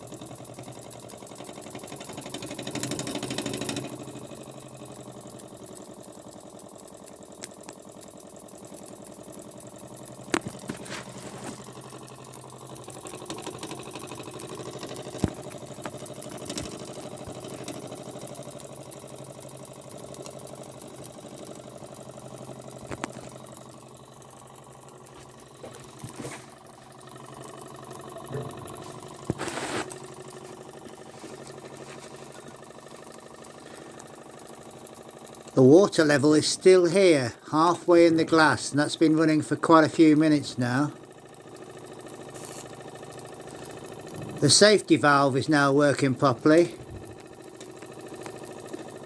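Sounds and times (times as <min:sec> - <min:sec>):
toy steam engine clattering: 0:00.0 - 0:49.0
sharp clicks: 0:07.4 - 0:08.8.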